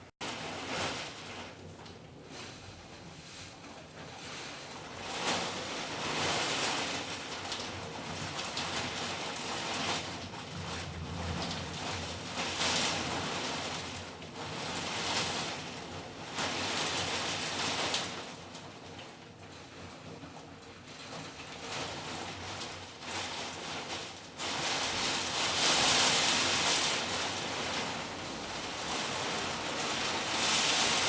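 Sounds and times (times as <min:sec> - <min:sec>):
heavy rain: 0:04.8 - 0:18.9, 0:21.0 - 0:31.0.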